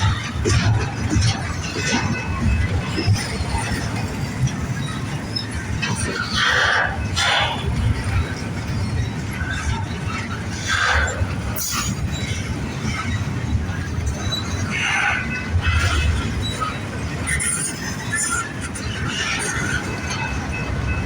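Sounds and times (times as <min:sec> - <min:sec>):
wheel squeal: 0:00.0 - 0:13.3, 0:14.0 - 0:21.0
freight train rumbling on rails: 0:00.0 - 0:21.0.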